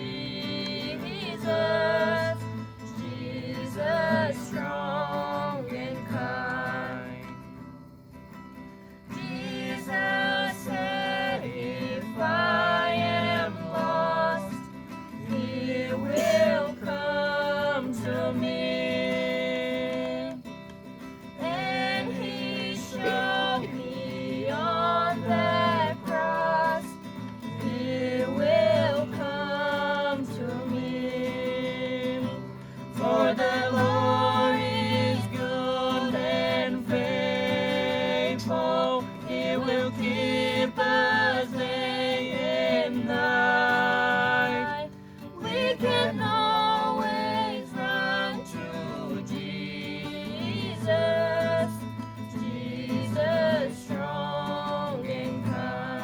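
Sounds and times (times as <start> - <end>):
strummed acoustic guitar: 0.0 - 56.0
person singing: 21.4 - 27.0.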